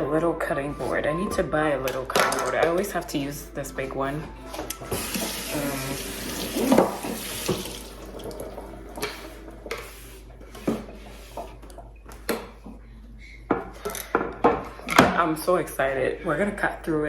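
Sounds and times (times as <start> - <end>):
tap running into sink: 4.7 - 9.2.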